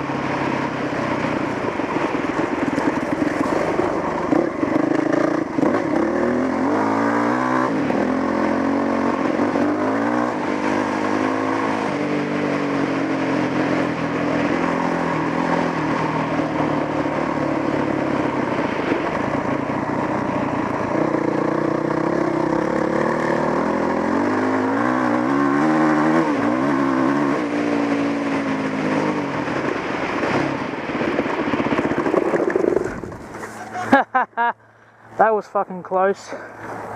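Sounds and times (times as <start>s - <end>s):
motorcycle engine revving through gears: 0.0s - 33.8s.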